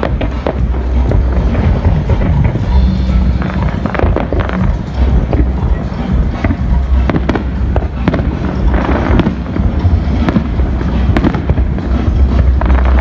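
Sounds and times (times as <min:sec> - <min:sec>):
fireworks bangs and crackles: 0:00.0 - 0:13.0
low rumble: 0:00.0 - 0:13.0.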